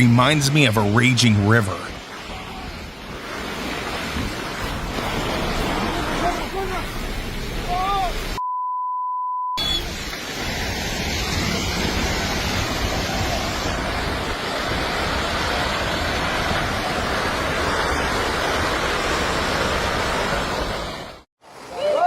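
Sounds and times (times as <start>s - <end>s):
landslide debris rushing: 2.1s - 8.3s.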